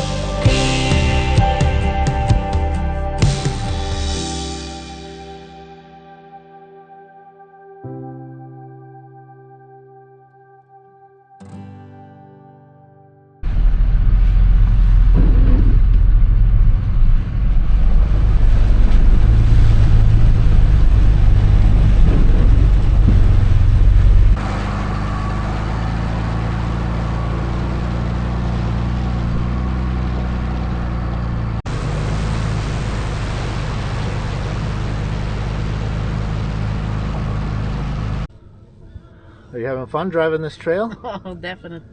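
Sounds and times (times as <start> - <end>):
truck engine running: 0.0 - 5.4, 13.4 - 38.3.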